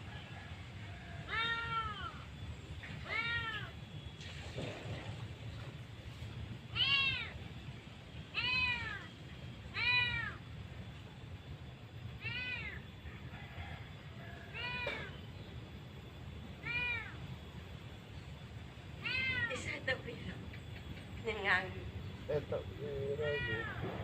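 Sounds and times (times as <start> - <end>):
cat meowing: 1.3 - 2.2, 3.0 - 3.8, 6.8 - 7.4, 8.4 - 9.1, 9.7 - 10.4, 12.2 - 12.8, 14.5 - 15.1, 16.6 - 17.2, 19.0 - 19.6, 23.2 - 23.9.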